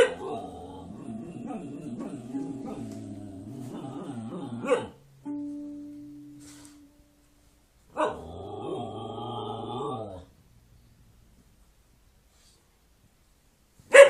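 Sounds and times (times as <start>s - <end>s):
music: 1.4s - 7.6s.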